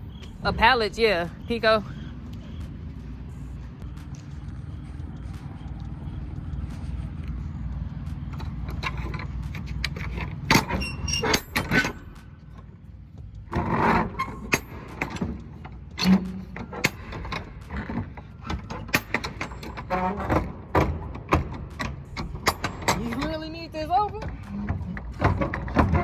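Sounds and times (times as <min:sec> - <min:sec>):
truck engine idling: 0:00.0 - 0:26.0
metallic clicks and clanks: 0:08.0 - 0:26.0.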